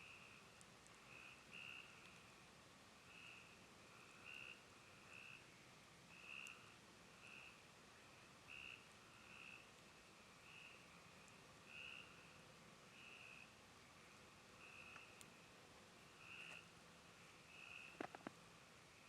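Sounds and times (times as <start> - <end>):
faint frog calling: 1.1 - 2.2, 3.1 - 7.7, 8.4 - 9.8, 10.4 - 15.4, 16.1 - 16.7, 17.5 - 18.3.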